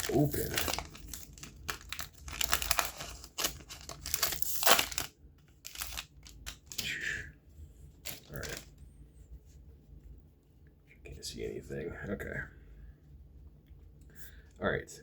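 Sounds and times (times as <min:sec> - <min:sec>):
wrapper tearing and crinkling: 0:00.0 - 0:06.8, 0:08.0 - 0:08.7.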